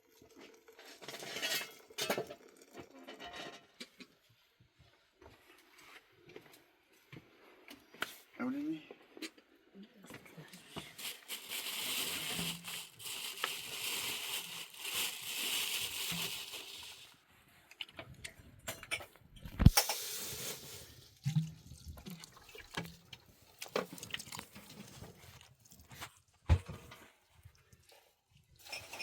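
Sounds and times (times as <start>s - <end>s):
water pouring: 19.7s - 26.0s
objects knocking and clattering: 26.0s - 27.1s.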